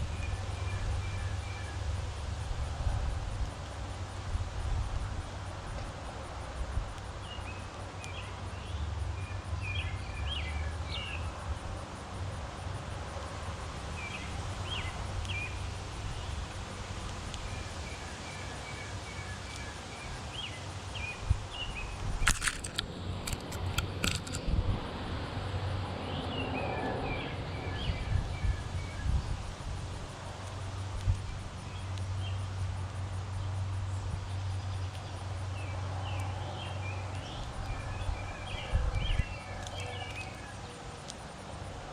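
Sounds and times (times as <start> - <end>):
sharp clicks: 22.0 - 24.5
songbird chirping: 33.4 - 41.2.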